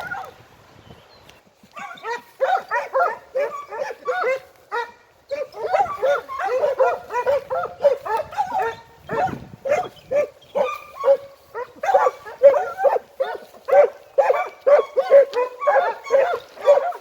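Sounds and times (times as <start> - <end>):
hounds baying: 1.7 - 17.0.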